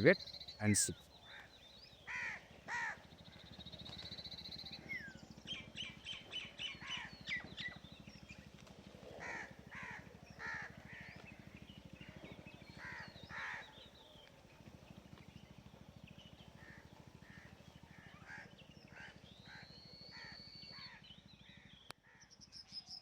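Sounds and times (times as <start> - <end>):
crows cawing: 1.2 - 3.1, 9.2 - 11.2, 12.8 - 13.8, 16.6 - 21.0.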